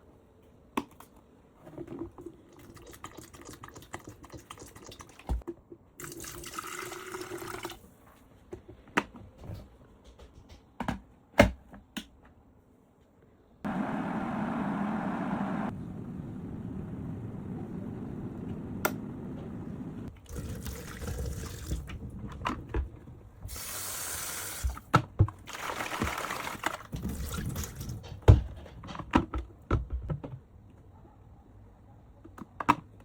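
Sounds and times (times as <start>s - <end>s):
water running and splashing: 25.4s - 27.8s.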